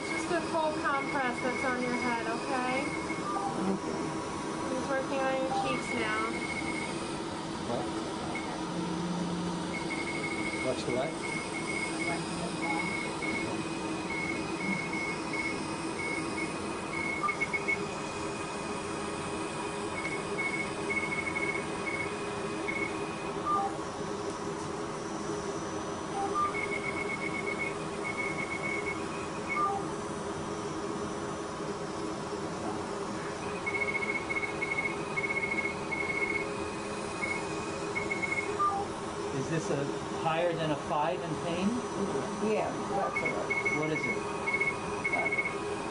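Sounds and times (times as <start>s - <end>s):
laser beeping: 0.0s - 4.0s, 4.7s - 7.1s, 9.7s - 17.9s, 26.1s - 29.9s, 33.4s - 38.9s, 42.4s - 45.6s
equipment hum: 0.0s - 45.9s.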